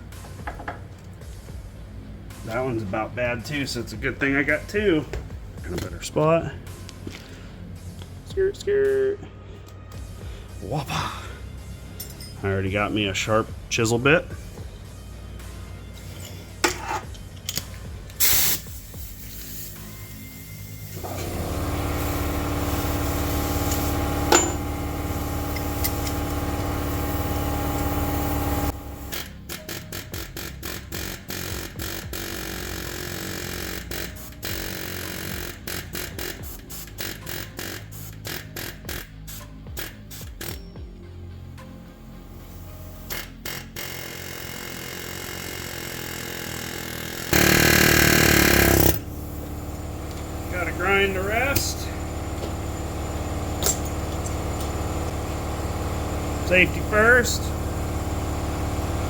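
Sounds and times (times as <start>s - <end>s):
pneumatic air hammer: 16.0s - 40.8s, 42.2s - 59.0s
power tool running: 18.2s - 40.6s, 41.6s - 59.0s.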